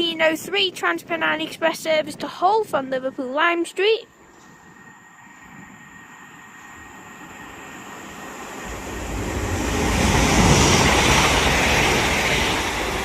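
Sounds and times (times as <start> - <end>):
train low rumble: 0.0 - 13.0
train rushing past: 4.8 - 13.0.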